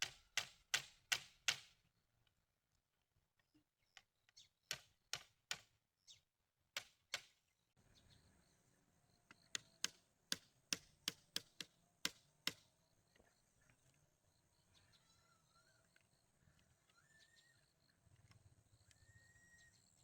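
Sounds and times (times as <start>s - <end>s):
hand tool knocking bamboo: 0.0s - 1.7s, 4.7s - 5.7s, 9.5s - 12.6s.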